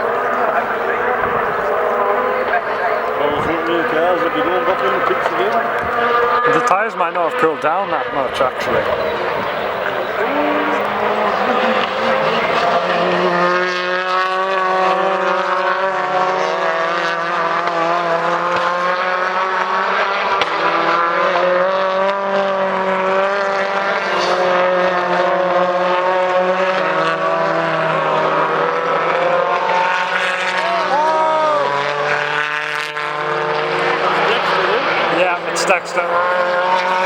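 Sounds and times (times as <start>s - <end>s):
race car engines running: 0.0s - 37.0s.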